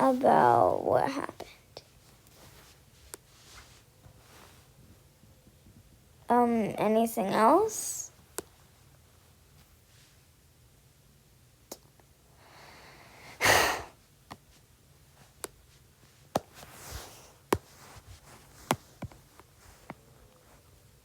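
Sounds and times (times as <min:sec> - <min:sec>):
faint breath: 0:12.3 - 0:14.0.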